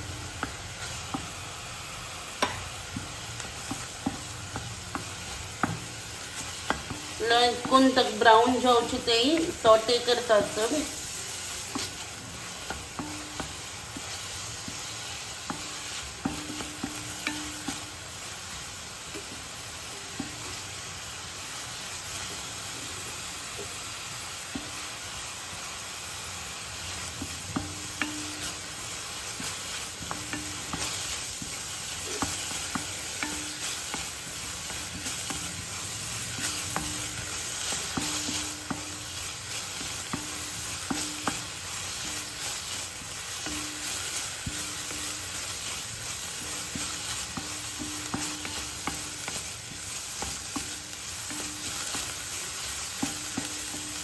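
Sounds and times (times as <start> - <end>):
onions sizzling in oil: 0.0 - 54.0
spatula scraping a pan: 2.3 - 18.2, 26.8 - 54.0.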